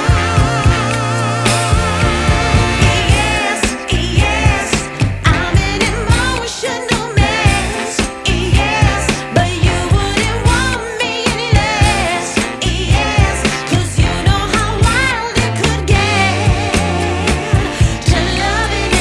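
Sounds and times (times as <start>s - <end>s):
song with vocals and beat: 0.0s - 19.0s.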